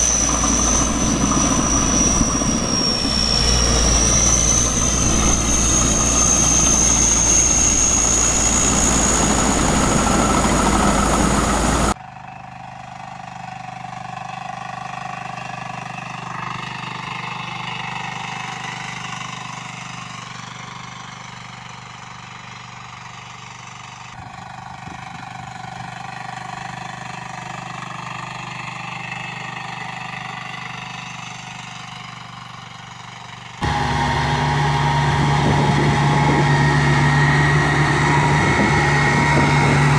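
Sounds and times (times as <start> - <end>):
high engine whine: 0.0 - 20.8, 31.4 - 39.9
walking tractor engine: 0.0 - 39.9.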